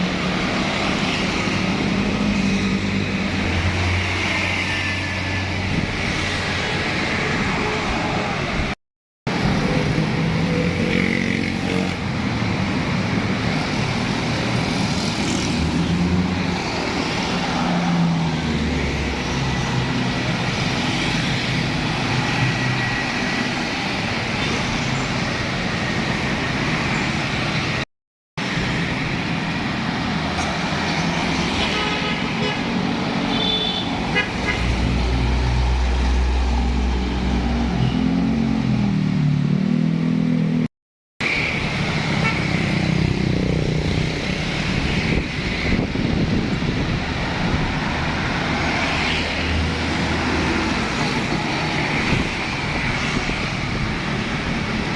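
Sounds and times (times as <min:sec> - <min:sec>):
trucks and cars passing: 0:00.0 - 0:54.9
vehicle horn: 0:31.6 - 0:32.7, 0:33.3 - 0:34.8.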